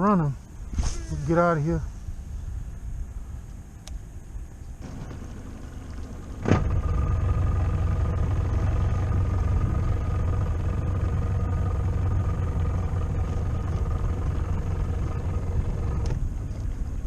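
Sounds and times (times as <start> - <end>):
outboard motor rumbling: 4.8 - 17.0.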